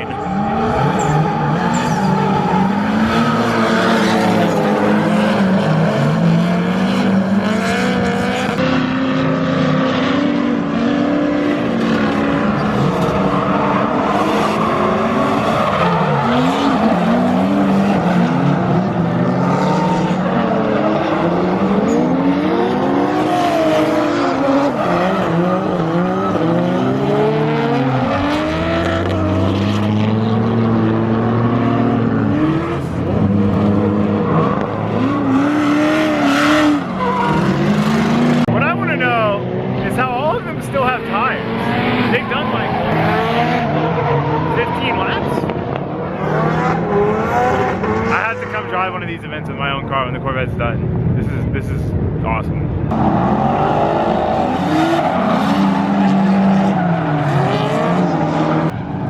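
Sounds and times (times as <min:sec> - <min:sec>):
tyre squeal: 0:00.0 - 0:04.7, 0:36.1 - 0:37.8
engines revving: 0:00.0 - 0:59.0.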